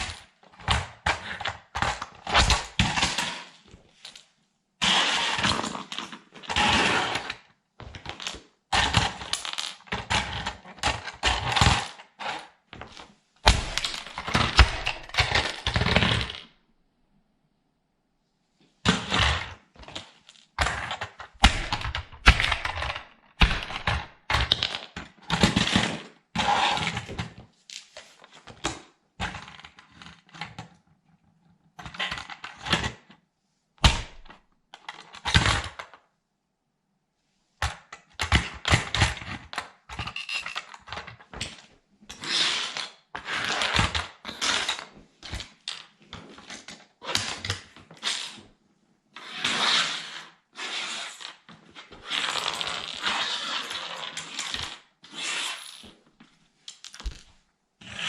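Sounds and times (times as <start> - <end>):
plastic toy cracking underfoot: 12.8 - 16.4.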